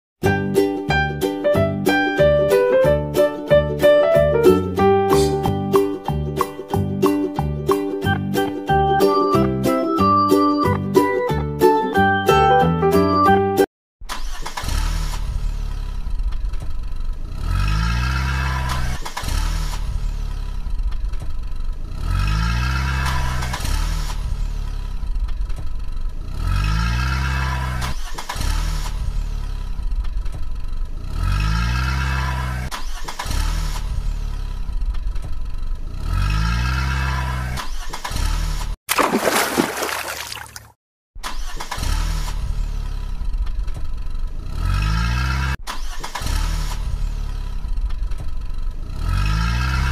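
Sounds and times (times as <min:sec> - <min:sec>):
car engine revving: 0:17.0 - 0:20.7, 0:21.8 - 0:25.0, 0:26.2 - 0:29.9, 0:30.8 - 0:37.6, 0:41.2 - 0:49.9.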